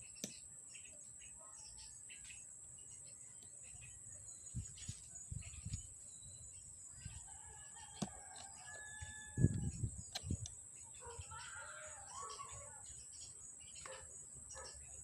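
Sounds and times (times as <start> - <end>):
rooster crowing: 7.2 - 9.8.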